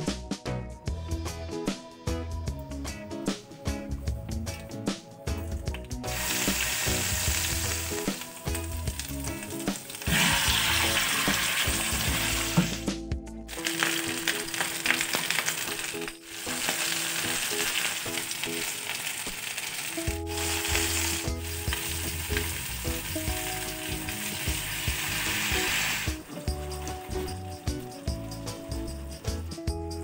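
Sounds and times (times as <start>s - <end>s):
soft background music: 0.0s - 30.0s
chicken sizzling in hot oil: 5.3s - 12.9s, 13.5s - 29.5s.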